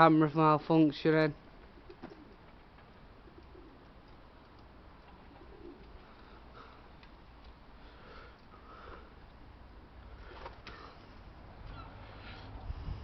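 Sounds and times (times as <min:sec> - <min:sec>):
pigeons cooing: 0:01.6 - 0:04.1, 0:05.0 - 0:06.8.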